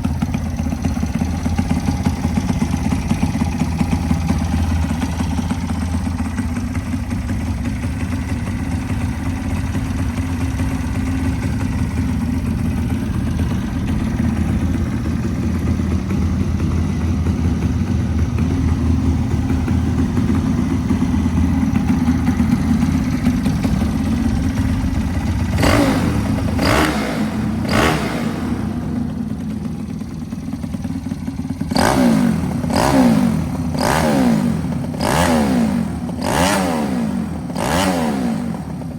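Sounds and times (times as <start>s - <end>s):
engine throttle blips: 0.0s - 38.9s
motorcycle engine idling: 0.0s - 38.9s.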